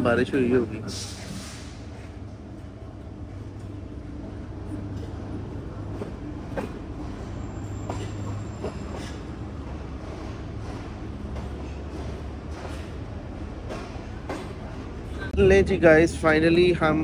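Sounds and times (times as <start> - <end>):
train coaches rumbling: 0.0 - 17.0
wheels clacking over rail joints: 4.8 - 15.3.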